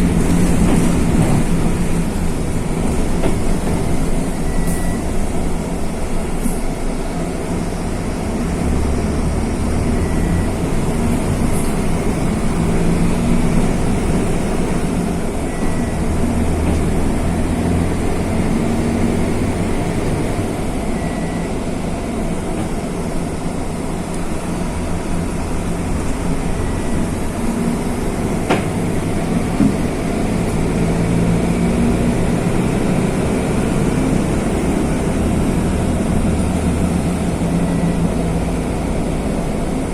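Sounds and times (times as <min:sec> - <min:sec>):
bus diesel engine rumble: 0:00.0 - 0:39.9
faint short beep: 0:04.2 - 0:05.4, 0:10.0 - 0:10.6, 0:15.4 - 0:16.8, 0:20.9 - 0:21.6, 0:37.5 - 0:38.5.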